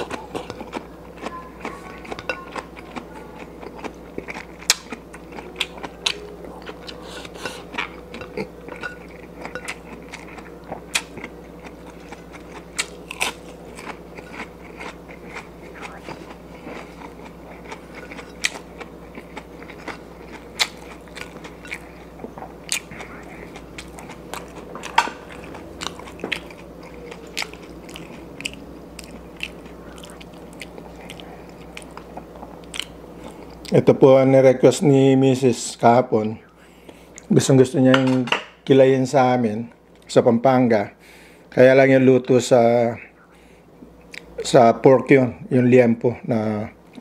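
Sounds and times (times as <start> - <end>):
person chewing food: 0.0 - 33.8, 43.8 - 44.4
faint steady hum: 0.0 - 47.0.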